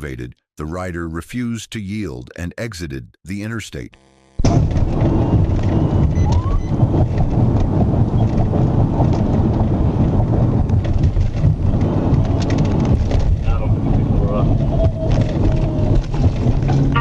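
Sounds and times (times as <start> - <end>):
road and wind noise: 4.6 - 17.0.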